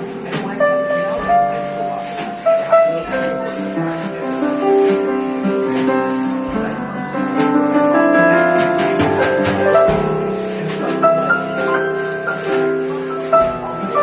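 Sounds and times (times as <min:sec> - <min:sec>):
keyboard chords and melody: 0:06.0 - 0:14.0.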